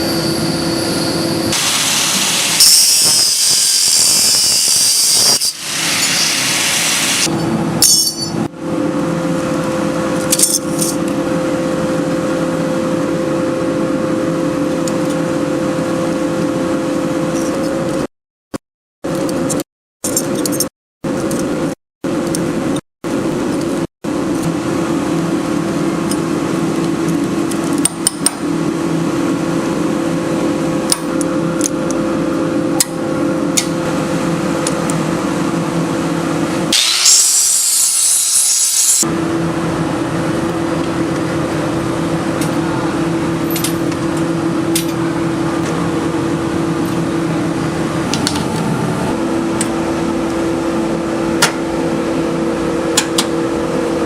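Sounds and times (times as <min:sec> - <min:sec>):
loud high hiss: 0:00.0 - 0:07.3, 0:36.7 - 0:39.0
power tool motor humming: 0:01.5 - 0:07.3.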